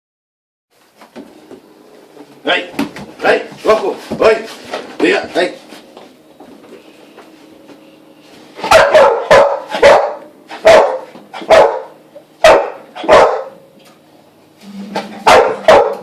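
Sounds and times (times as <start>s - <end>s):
dog barking: 8.6s - 13.6s, 15.2s - 16.0s.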